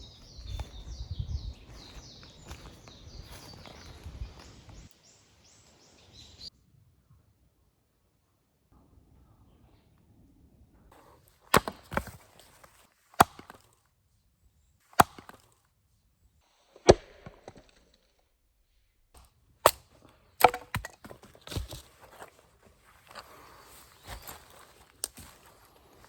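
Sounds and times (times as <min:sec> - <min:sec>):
wood being chopped: 0:11.0 - 0:13.7, 0:14.9 - 0:15.6, 0:19.2 - 0:22.4.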